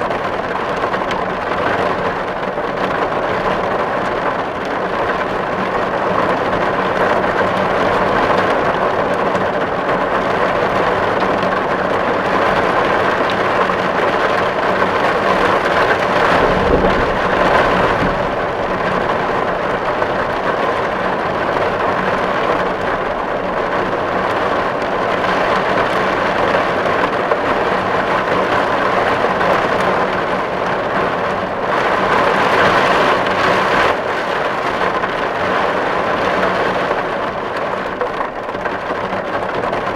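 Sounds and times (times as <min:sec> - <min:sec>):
rain drumming on a tin roof: 0:00.0 - 0:39.9
low rumble: 0:15.8 - 0:21.4.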